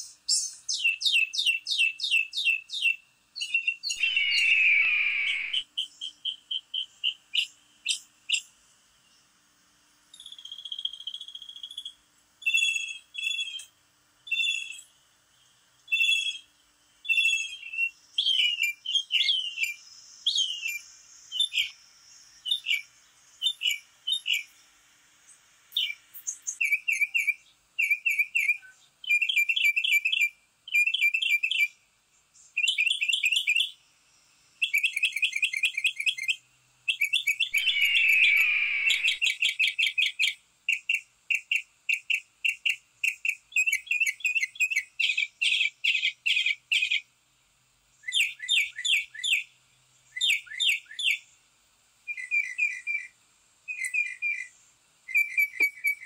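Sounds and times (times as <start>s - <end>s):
songbirds chirping: 0.0s - 56.0s
bird falling whistle: 4.0s - 5.6s, 37.5s - 39.2s.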